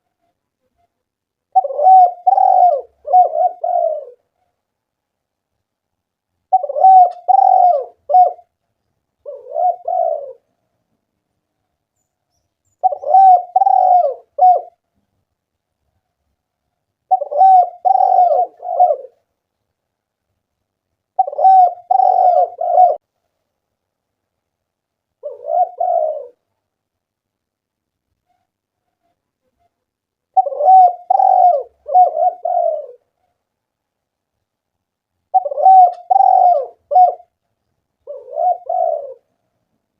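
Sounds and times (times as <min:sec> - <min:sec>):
dove cooing: 0:01.5 - 0:04.4, 0:06.5 - 0:08.5, 0:09.2 - 0:10.5, 0:12.8 - 0:14.8, 0:17.1 - 0:19.3, 0:21.2 - 0:23.0, 0:25.2 - 0:26.5, 0:30.3 - 0:33.2, 0:35.3 - 0:37.4, 0:38.0 - 0:39.4.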